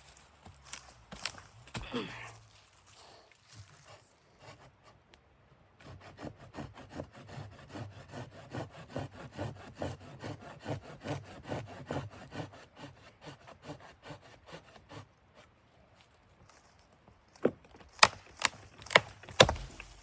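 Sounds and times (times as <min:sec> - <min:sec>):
hand saw cutting wood: 0:03.9 - 0:05.0, 0:05.8 - 0:15.5, 0:18.0 - 0:20.0.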